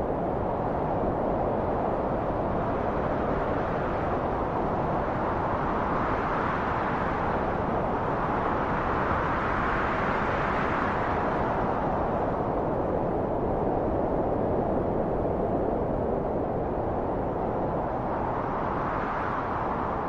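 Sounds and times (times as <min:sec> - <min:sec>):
rushing wind: 0:00.0 - 0:20.0.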